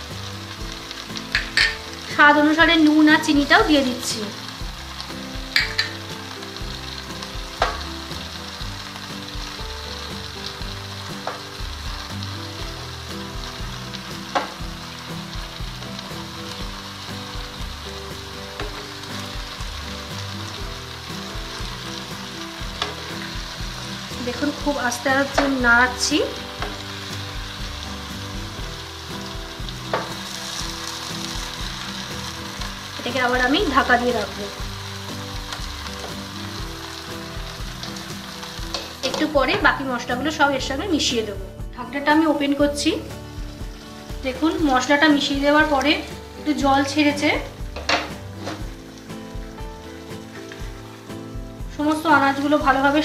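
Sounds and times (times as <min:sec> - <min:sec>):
background music of held notes: 0:00.0 - 0:53.0
vegetables sizzling in a pan: 0:00.0 - 0:53.0
wooden spatula stirring: 0:04.5 - 0:39.7, 0:47.7 - 0:53.0.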